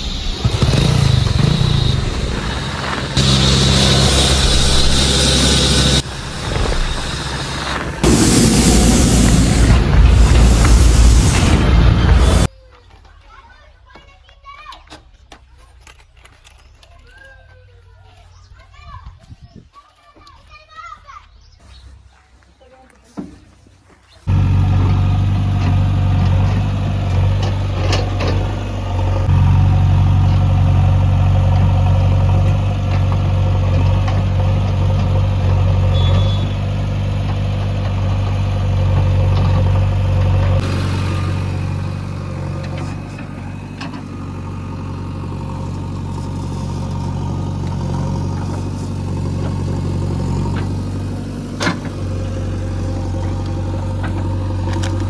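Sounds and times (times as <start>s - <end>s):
heavy diesel engine running: 0.0s - 12.5s, 24.3s - 55.0s.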